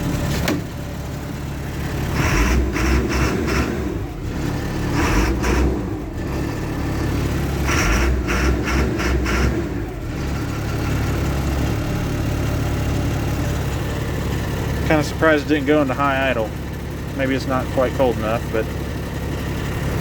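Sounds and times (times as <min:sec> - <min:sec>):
diesel bus engine idling: 0:00.0 - 0:20.0.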